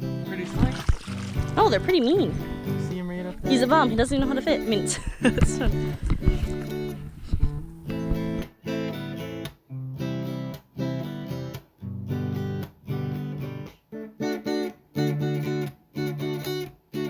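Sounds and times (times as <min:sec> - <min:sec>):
acoustic guitar strumming: 0:00.0 - 0:09.4.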